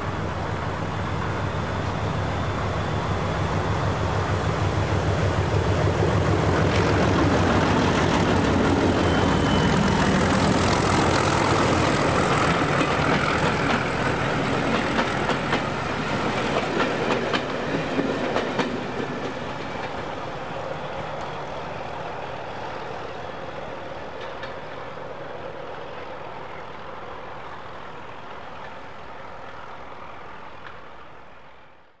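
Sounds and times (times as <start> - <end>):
train rumble: 0.0 - 31.8
train wheels clicking over rail joints: 4.1 - 20.2.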